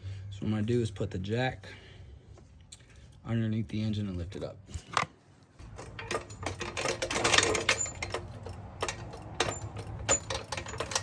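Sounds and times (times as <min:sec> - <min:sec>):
jack scraping: 0:05.6 - 0:11.0.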